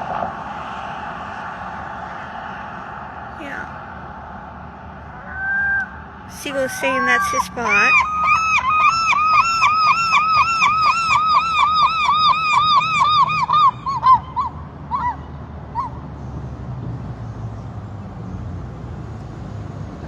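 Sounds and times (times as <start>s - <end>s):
gull calling: 5.1s - 16.0s.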